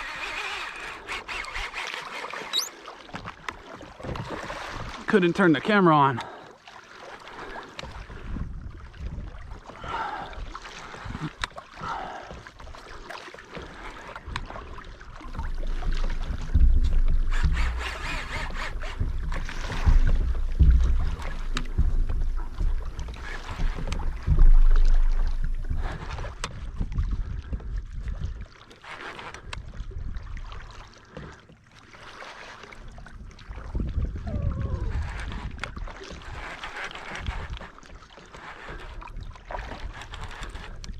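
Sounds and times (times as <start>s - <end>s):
water sloshing against hull: 0.0s - 40.9s
wind buffeting microphone: 7.9s - 10.0s, 15.1s - 28.4s, 33.2s - 36.5s
knocks on hull: 15.2s - 27.2s.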